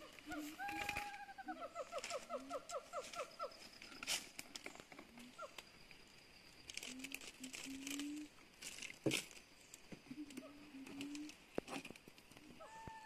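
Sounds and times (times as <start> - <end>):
birds chirping and whistling: 0.0 - 5.9
clicks and rustles: 6.6 - 12.6.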